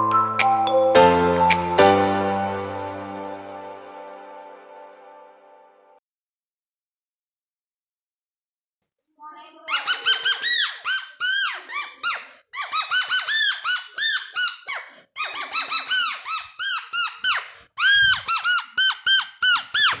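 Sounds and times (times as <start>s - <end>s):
squeaky stick noisemaker: 9.6s - 20.0s.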